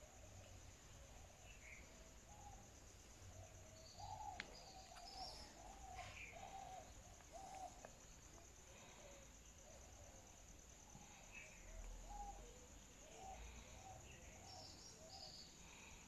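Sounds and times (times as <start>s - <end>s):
bird calling: 3.4s - 8.0s.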